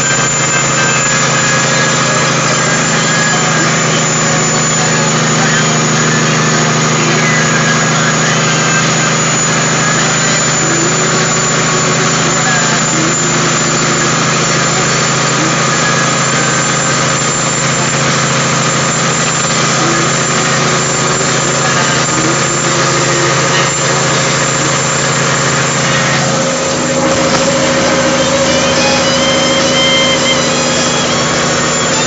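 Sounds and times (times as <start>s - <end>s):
diesel truck engine running: 0.0s - 32.0s.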